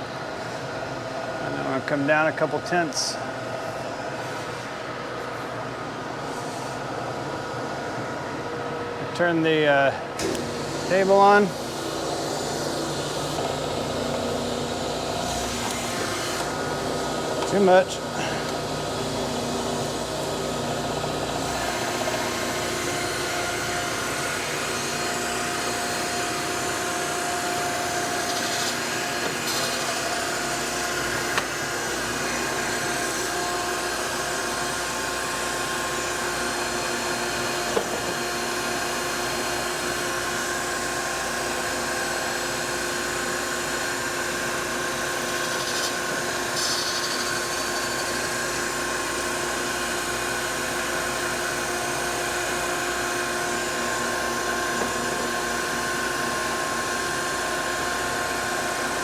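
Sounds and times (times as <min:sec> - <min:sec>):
surface grinder running: 0:10.4 - 0:35.0.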